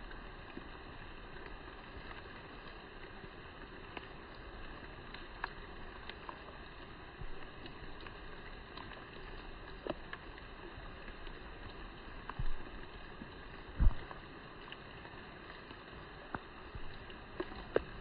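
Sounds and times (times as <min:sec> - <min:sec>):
faint clicks: 0:00.1 - 0:18.0
dull low thumps: 0:13.7 - 0:14.1.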